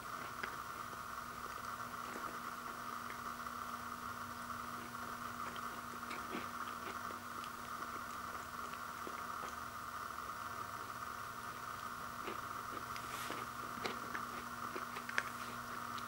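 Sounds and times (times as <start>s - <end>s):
faint low hum: 0.0s - 16.0s
pastry crackling as chewed: 0.0s - 16.0s.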